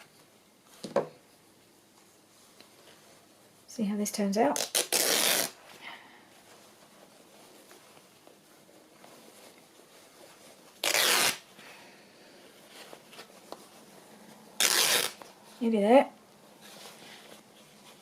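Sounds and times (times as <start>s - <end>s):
fabric being torn: 4.5s - 5.6s, 10.7s - 11.5s, 14.6s - 15.2s.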